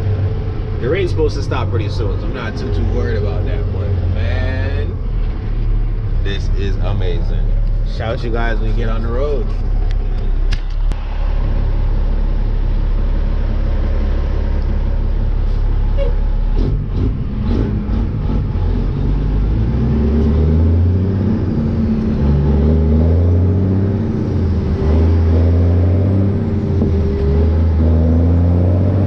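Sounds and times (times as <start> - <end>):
truck diesel engine revving: 11.0 - 29.0.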